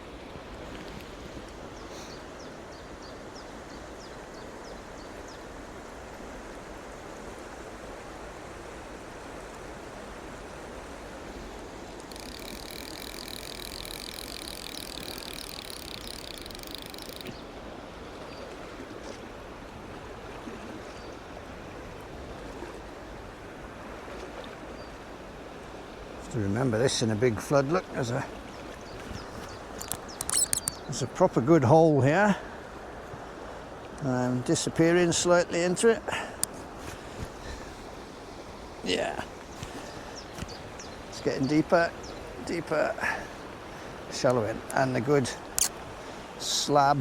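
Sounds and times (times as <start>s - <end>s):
stream running over stones: 8.0s - 19.0s
faint high chirps: 29.8s - 30.8s.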